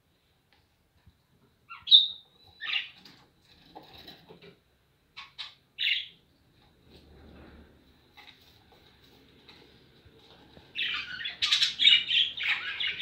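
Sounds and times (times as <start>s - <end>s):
budgerigars chirping: 1.7s - 3.0s, 5.2s - 6.2s, 10.7s - 13.0s.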